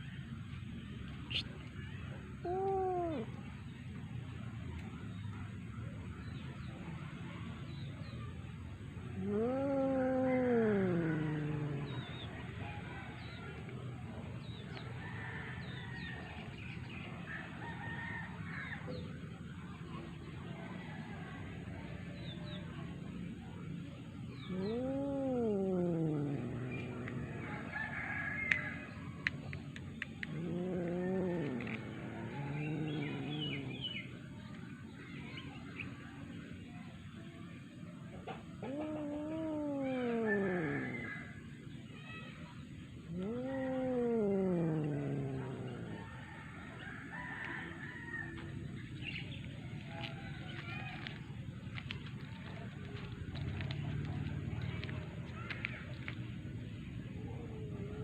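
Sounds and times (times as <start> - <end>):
cat warning yowl: 9.2 - 12.9, 24.4 - 28.9, 30.1 - 34.3, 38.6 - 41.4, 43.0 - 46.5.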